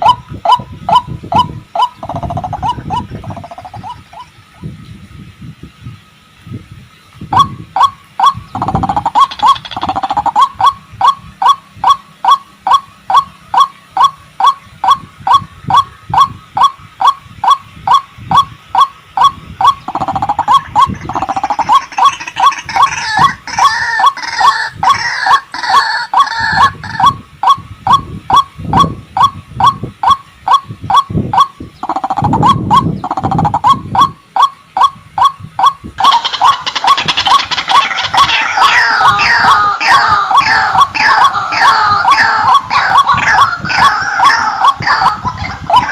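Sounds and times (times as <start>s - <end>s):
waterhen calling: 0.0s - 5.0s, 6.9s - 45.9s.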